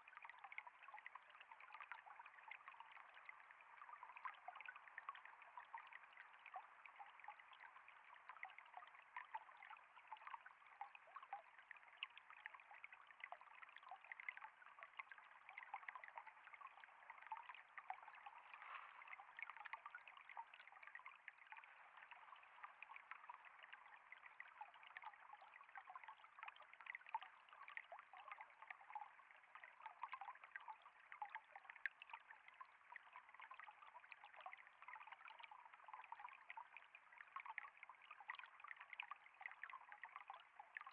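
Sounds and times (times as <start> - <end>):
water flowing and trickling: 0.0 - 40.9
small quick water splashes: 18.2 - 19.8.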